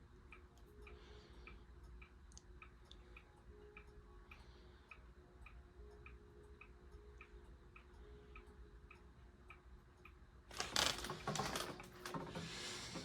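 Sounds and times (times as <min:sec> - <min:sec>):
ceiling fan humming and ticking: 0:00.0 - 0:13.0
rattling handling noise: 0:10.5 - 0:13.0.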